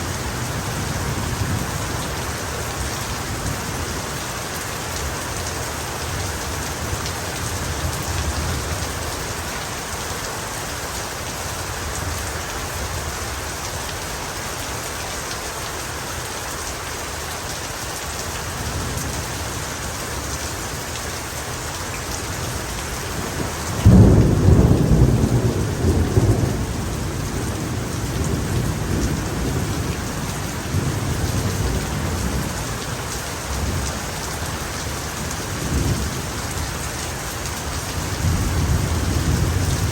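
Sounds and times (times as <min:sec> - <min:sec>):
heavy rain falling: 0:00.0 - 0:39.9
thunderclap and rumbling thunder: 0:23.0 - 0:34.0, 0:35.2 - 0:36.7, 0:37.9 - 0:39.9.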